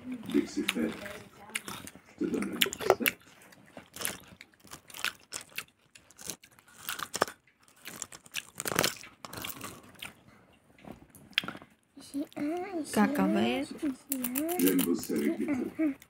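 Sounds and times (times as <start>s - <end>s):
person chewing crunchy peanut bar: 0.2s - 10.3s, 14.1s - 15.3s.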